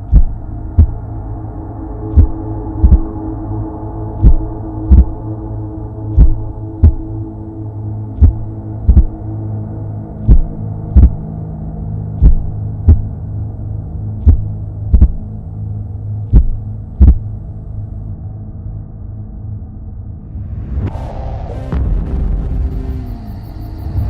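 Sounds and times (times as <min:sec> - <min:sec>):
steady low drone: 0:00.0 - 0:24.0
heartbeat thumps: 0:00.1 - 0:01.0, 0:02.1 - 0:03.2, 0:04.2 - 0:05.2, 0:06.1 - 0:07.1, 0:08.2 - 0:09.2, 0:10.2 - 0:11.2, 0:12.2 - 0:13.1, 0:14.2 - 0:15.3, 0:16.3 - 0:17.3.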